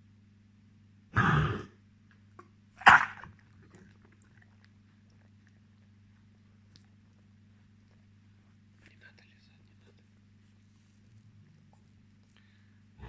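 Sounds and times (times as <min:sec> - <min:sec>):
dog coughing: 0:01.2 - 0:01.7, 0:02.8 - 0:03.4.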